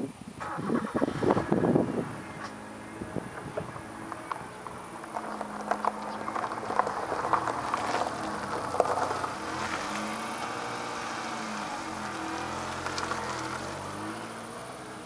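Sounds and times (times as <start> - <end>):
car tyres hissing on wet road: 2.0 - 15.0
rain falling: 3.8 - 14.2.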